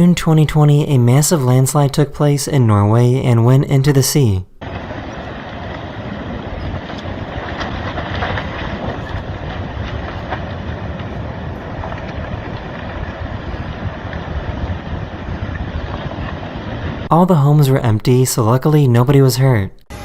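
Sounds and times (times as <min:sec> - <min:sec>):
landslide rumbling: 0:00.0 - 0:19.6
wind buffeting microphone: 0:04.6 - 0:17.1
cracks and snaps: 0:06.7 - 0:13.4.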